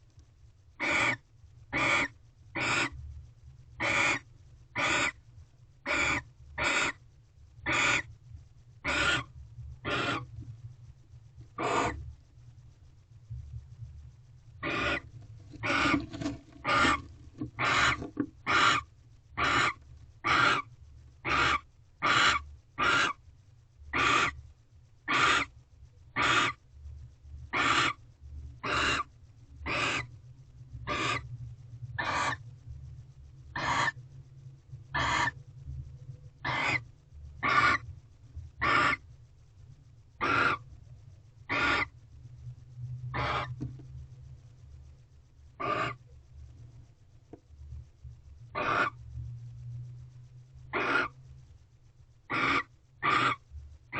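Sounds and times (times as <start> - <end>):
low hum: 0.0 - 53.9
barn owl hissing calls: 0.8 - 3.0, 3.8 - 5.2, 5.9 - 7.0, 7.6 - 8.1, 8.8 - 10.4, 11.5 - 12.1, 14.6 - 23.2, 23.9 - 24.4, 25.1 - 25.6, 26.2 - 26.6, 27.5 - 28.0, 28.6 - 30.1, 30.9 - 31.3, 32.0 - 32.4, 33.6 - 34.0, 34.9 - 35.4, 36.4 - 37.9, 38.6 - 39.1, 40.2 - 40.7, 41.5 - 42.0, 43.1 - 43.6, 45.6 - 46.0, 48.6 - 49.0, 50.7 - 51.2, 52.3 - 53.4.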